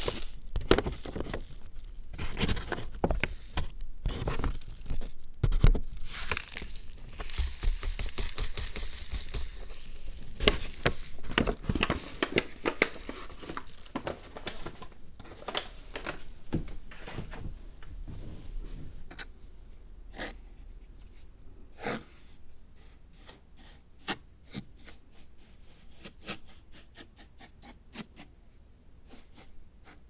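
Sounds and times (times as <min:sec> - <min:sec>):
scratchy scraping: 0:00.0 - 0:16.2
crinkling handling noises: 0:00.0 - 0:19.6.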